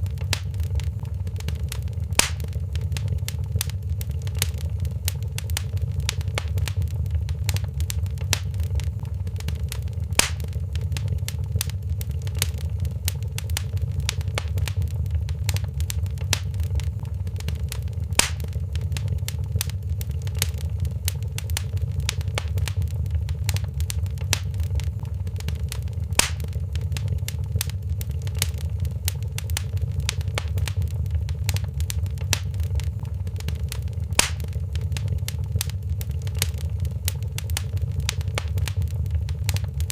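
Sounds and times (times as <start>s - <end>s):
low rumble: 0.0s - 39.9s
wood fire crackling: 0.0s - 39.9s.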